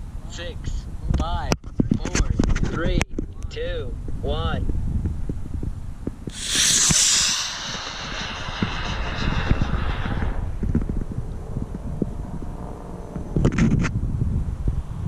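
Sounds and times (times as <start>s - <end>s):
wind rumbling on microphone: 0.9s - 15.0s
rocket motor rushing hiss: 6.3s - 11.3s.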